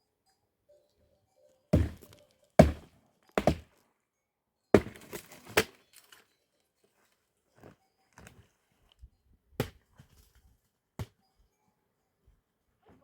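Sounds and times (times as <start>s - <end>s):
heavy thuds on wood: 1.8s - 2.0s, 2.6s - 2.8s, 3.4s - 3.6s.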